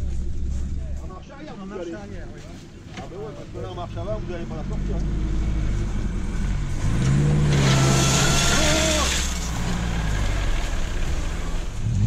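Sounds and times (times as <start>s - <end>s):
car engine starting and running: 3.1s - 12.0s.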